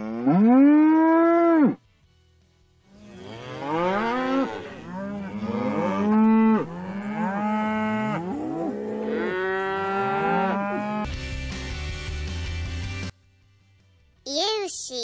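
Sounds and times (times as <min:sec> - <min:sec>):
cattle mooing: 0:02.9 - 0:11.1.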